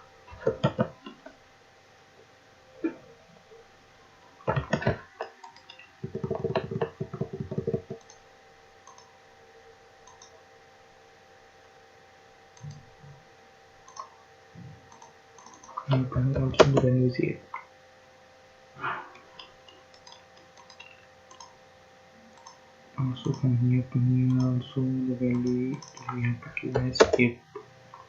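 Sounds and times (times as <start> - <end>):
faint electrical hum: 0.0 - 28.0
computer mouse and keyboard clicks: 0.4 - 1.3, 4.5 - 8.2, 8.8 - 9.1, 10.0 - 10.4, 12.6 - 12.9, 13.8 - 16.9, 19.2 - 21.6, 22.3 - 22.6, 25.2 - 28.0.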